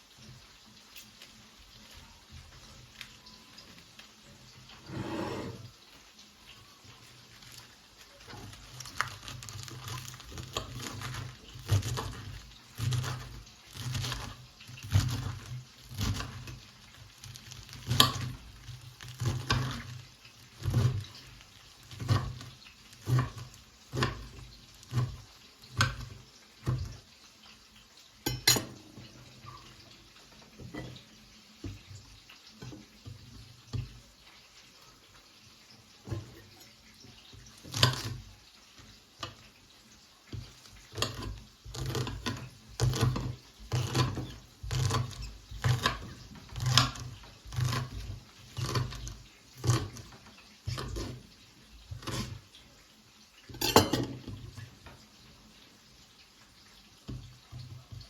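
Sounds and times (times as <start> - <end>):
dishes and pots clinking: 28.2 - 29.9, 30.5 - 31.1, 53.5 - 54.6.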